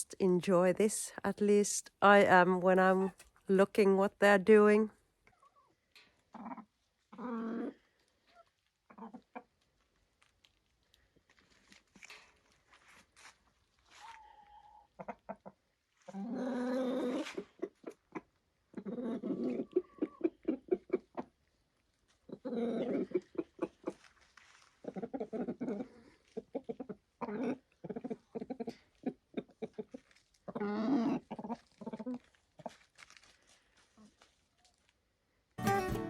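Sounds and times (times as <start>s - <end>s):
chickens clucking: 17.3s - 21.3s, 24.8s - 32.2s.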